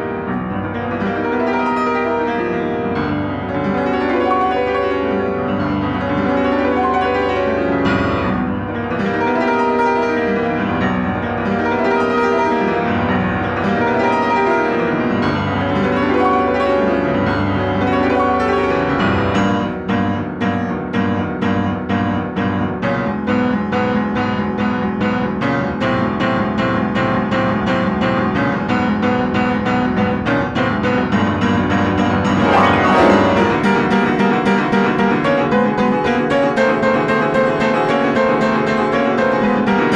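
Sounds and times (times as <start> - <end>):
piano playing: 32.2 - 34.5.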